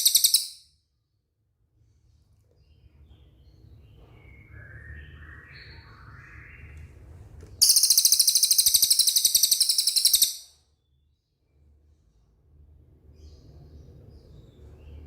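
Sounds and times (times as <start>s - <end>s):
bird high-pitched trill: 0.0s - 0.7s, 7.6s - 10.6s.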